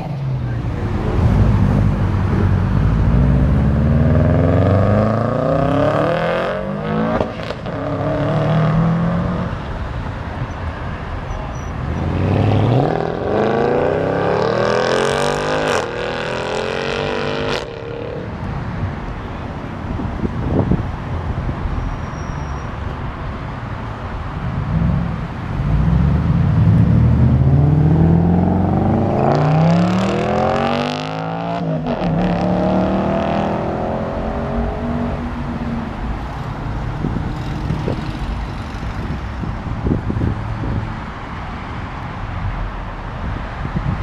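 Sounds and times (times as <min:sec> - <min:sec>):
car engine revving: 0:00.7 - 0:09.7, 0:24.7 - 0:39.5.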